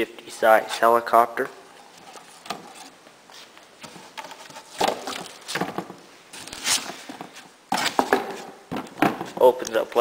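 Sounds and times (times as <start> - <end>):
cardboard rustling scrapes: 1.8 - 5.7, 6.3 - 8.6.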